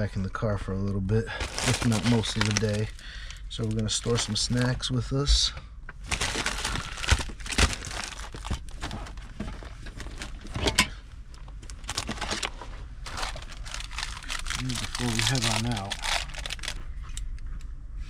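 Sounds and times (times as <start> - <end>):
snack packaging crinkling: 1.4 - 4.7, 6.1 - 10.6, 11.4 - 17.2.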